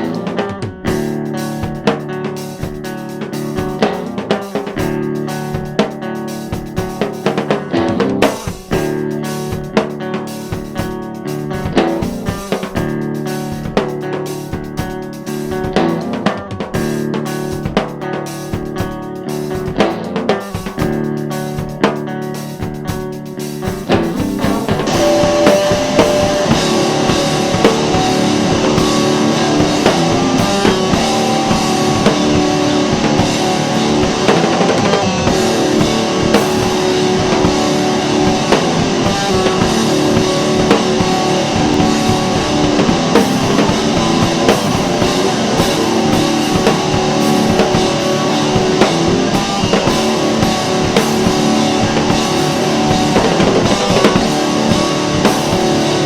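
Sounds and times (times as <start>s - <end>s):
rock music: 0.0s - 56.0s.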